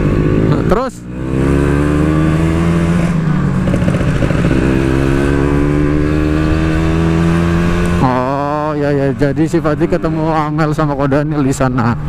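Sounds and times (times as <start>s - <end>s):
two-stroke motorcycle engine accelerating: 0.0s - 12.0s.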